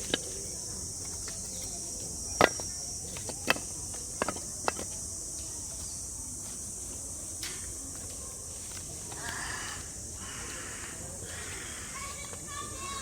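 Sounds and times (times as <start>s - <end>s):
cicadas chorus: 0.0s - 13.0s.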